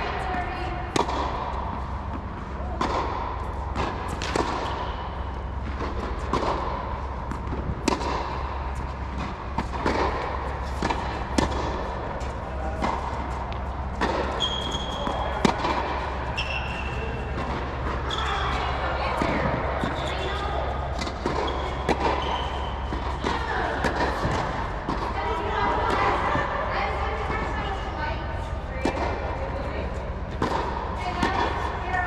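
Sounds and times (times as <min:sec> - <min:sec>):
steady low hum: 0:00.0 - 0:32.0
tennis balls hit with rackets: 0:00.0 - 0:32.0
short high squeaks: 0:14.3 - 0:15.0.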